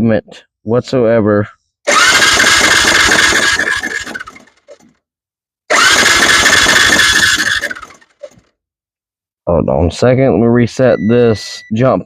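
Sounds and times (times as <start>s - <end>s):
electric starter cranking engine: 1.9s - 4.9s, 5.7s - 8.5s.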